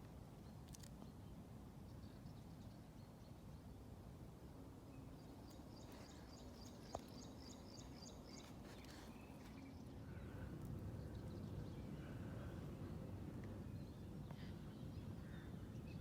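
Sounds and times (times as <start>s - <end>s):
low background rumble: 4.2s - 16.0s.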